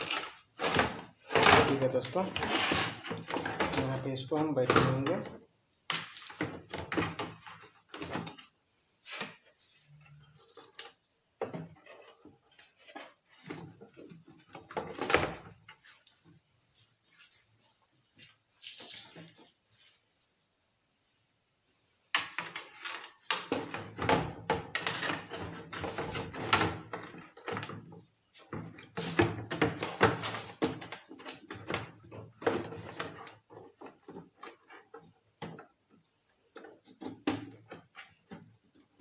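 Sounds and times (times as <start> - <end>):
knocks and clatter of parts: 0.0 - 8.6, 10.5 - 15.8, 22.1 - 38.6.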